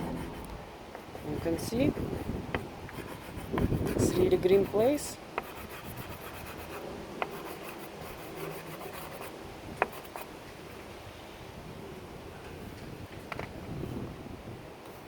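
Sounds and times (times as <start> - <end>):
pastel scratching on paper: 1.2 - 10.3.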